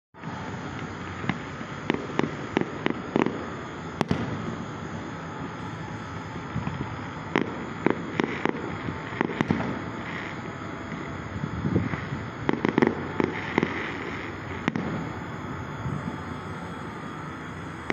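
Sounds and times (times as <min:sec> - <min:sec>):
steady background hiss: 0:00.2 - 0:17.9
sharp pops and bangs: 0:04.0 - 0:04.4, 0:12.4 - 0:13.8, 0:14.6 - 0:15.0.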